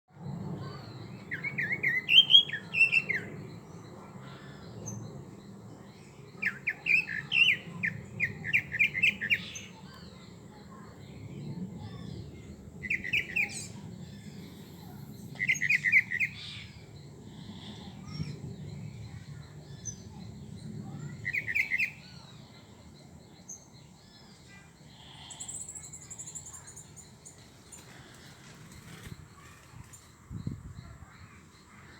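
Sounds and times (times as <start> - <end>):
faint bird chirps: 0.1 - 31.9
thin high bird trill: 25.3 - 30.2.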